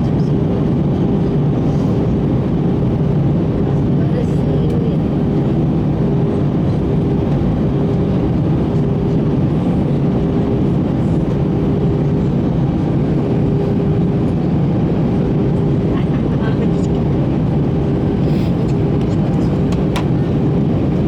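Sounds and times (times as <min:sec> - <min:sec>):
airplane cabin engine rumble: 0:00.0 - 0:21.0.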